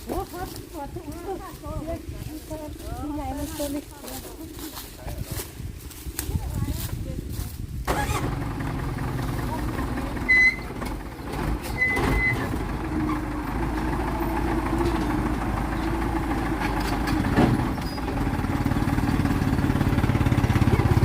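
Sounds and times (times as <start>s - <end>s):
vehicle engine throbbing: 7.8s - 21.0s.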